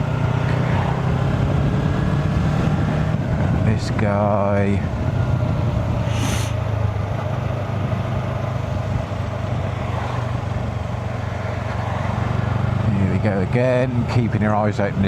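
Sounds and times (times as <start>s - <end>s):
motorcycle engine running: 0.0s - 15.0s
brief hiss: 6.1s - 6.6s.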